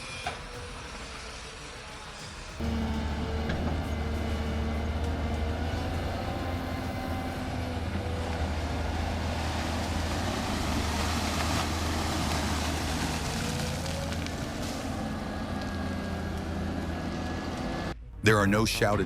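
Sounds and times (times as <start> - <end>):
diesel engine low drone: 0.3 - 19.0.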